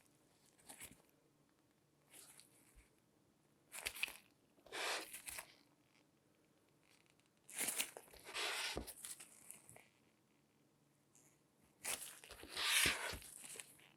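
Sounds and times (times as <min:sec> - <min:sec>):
crinkly handling noise: 0:00.0 - 0:01.1, 0:02.0 - 0:03.0, 0:03.7 - 0:06.1, 0:06.7 - 0:10.2, 0:11.2 - 0:13.9.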